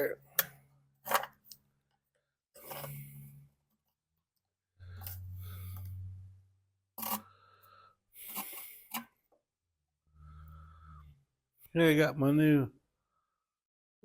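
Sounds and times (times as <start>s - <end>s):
rustles and scrapes of handling: 2.5s - 4.0s.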